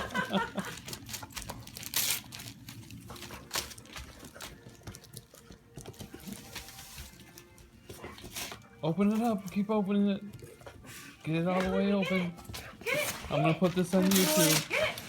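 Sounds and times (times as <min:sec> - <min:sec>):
wrapping paper crinkling and tearing: 0:00.0 - 0:04.8, 0:06.2 - 0:07.5, 0:12.8 - 0:15.0.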